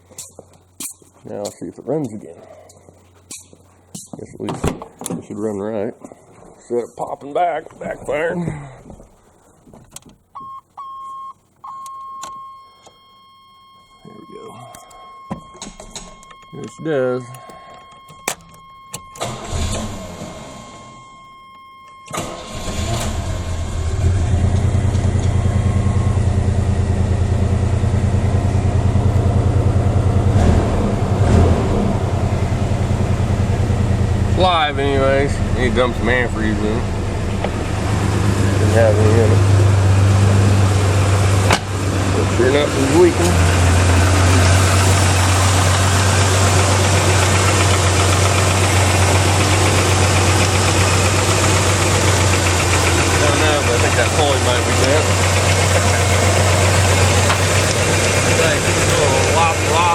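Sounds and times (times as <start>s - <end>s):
pickup engine starting and idling: 14.3s - 59.9s.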